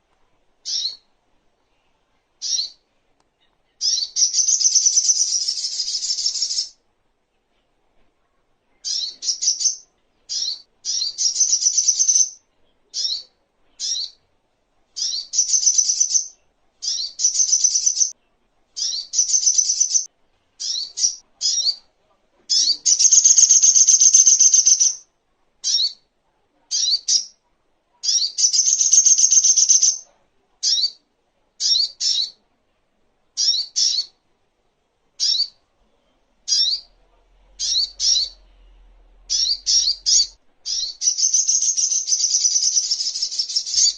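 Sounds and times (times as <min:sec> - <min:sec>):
bird trilling: 0:00.7 - 0:01.0, 0:22.5 - 0:25.0, 0:28.1 - 0:30.0, 0:37.6 - 0:38.4, 0:39.3 - 0:43.9.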